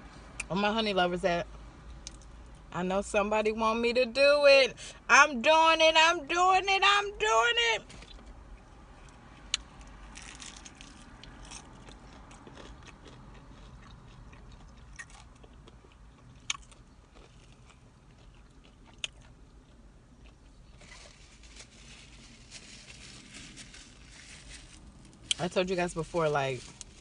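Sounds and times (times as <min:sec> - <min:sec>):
crunchy chewing of fried chicken: 0:09.2 - 0:22.6.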